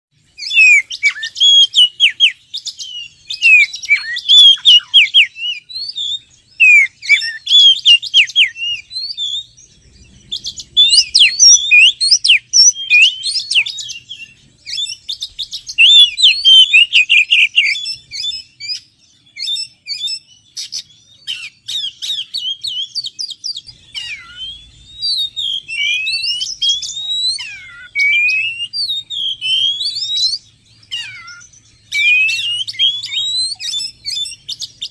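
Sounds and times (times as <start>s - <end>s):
bird chirps and whistles: 0.2s - 34.9s.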